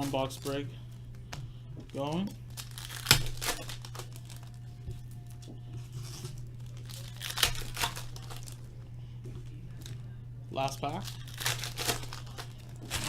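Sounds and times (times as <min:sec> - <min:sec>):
wrappers tearing and crinkling: 0:00.0 - 0:00.6, 0:01.9 - 0:08.7, 0:09.7 - 0:10.0, 0:10.7 - 0:13.0
steady low hum: 0:00.0 - 0:13.0.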